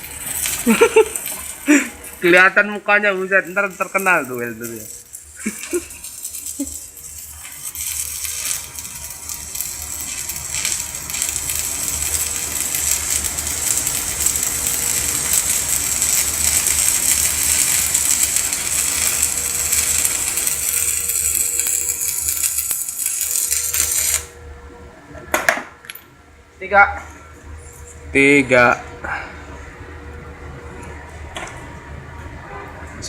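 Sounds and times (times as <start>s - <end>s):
arc welding crackling hiss: 0.0s - 24.4s.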